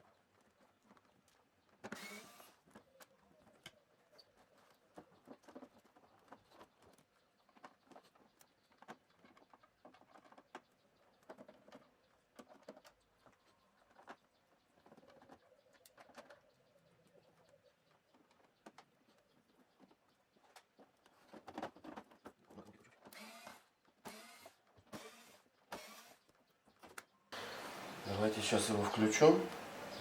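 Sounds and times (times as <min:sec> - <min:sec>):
scraping rustle: 0:18.1 - 0:23.4.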